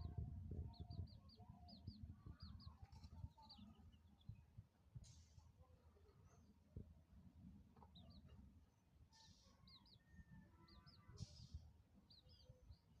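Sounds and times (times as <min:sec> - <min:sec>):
chicks peeping: 0:00.6 - 0:04.3.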